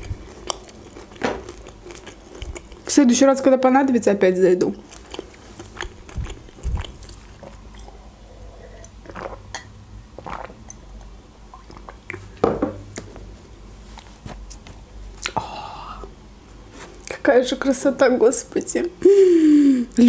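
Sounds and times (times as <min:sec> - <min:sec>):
chewing with mouth clicks: 0:00.0 - 0:02.9, 0:04.7 - 0:08.0, 0:10.2 - 0:12.3.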